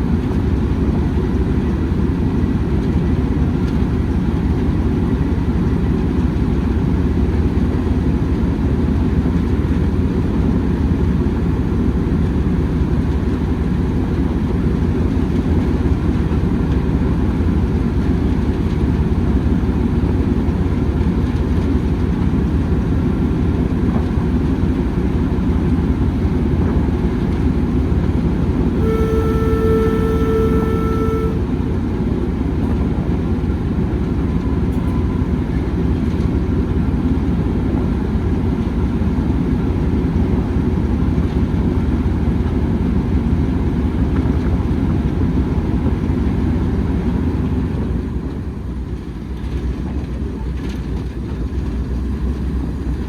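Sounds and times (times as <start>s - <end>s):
train running rumble: 0.0s - 53.0s
locomotive horn: 28.7s - 31.8s.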